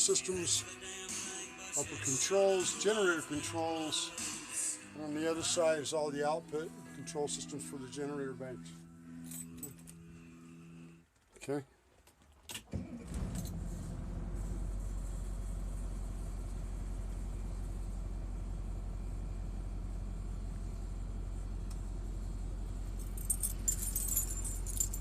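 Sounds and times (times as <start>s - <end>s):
motorhome engine starting and idling: 12.6s - 25.0s.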